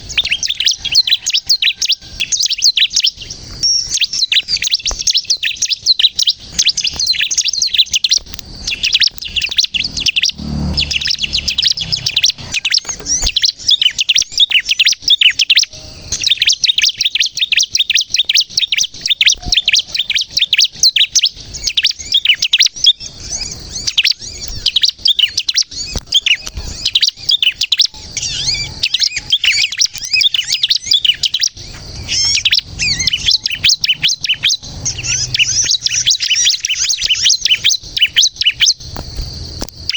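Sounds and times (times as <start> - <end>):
bird singing rapid chirps: 0.0 - 39.9.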